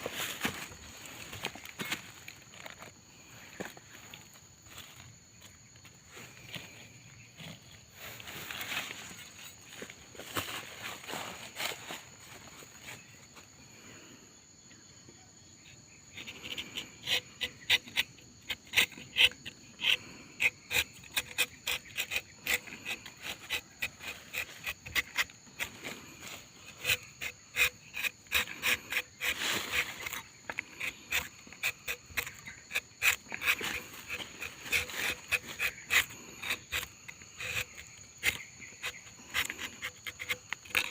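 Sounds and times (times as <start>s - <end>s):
insects droning: 0.0s - 40.9s
knife scraping tree bark: 16.1s - 40.9s.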